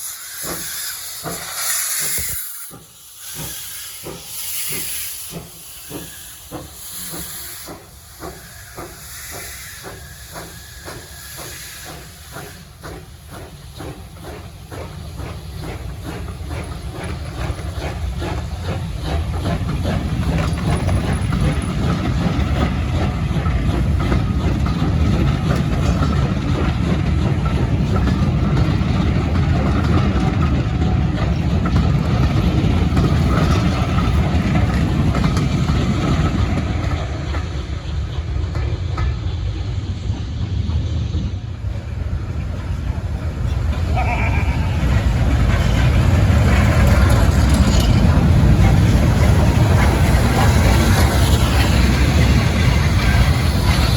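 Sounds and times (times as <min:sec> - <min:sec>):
steam locomotive hissing: 0:00.0 - 0:53.9
train rumbling on rails: 0:00.0 - 0:53.9.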